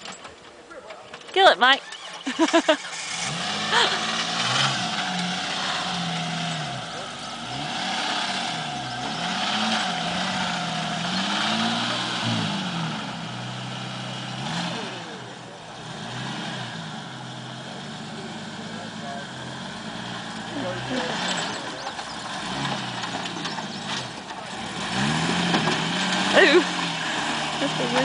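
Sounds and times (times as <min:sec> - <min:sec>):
engine revving: 0:01.4 - 0:28.0.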